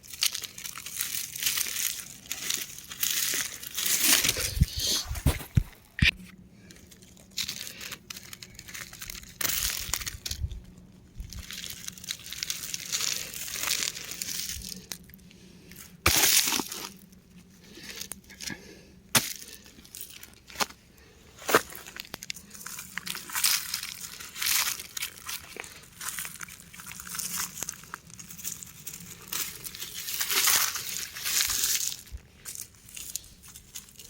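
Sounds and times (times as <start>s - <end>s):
rocks crushing and cracking: 0.0s - 6.2s, 6.8s - 15.2s, 15.8s - 17.2s, 21.4s - 34.0s.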